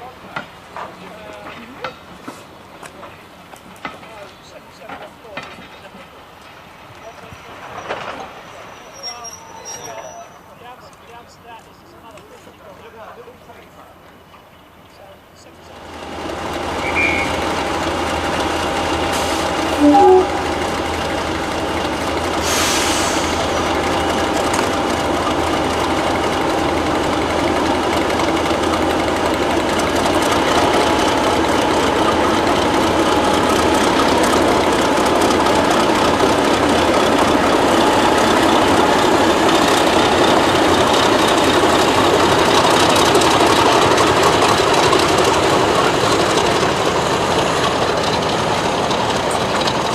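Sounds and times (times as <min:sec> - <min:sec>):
diesel locomotive engine running: 0:00.0 - 0:49.9
short loud tone: 0:16.8 - 0:17.4, 0:19.7 - 0:20.6.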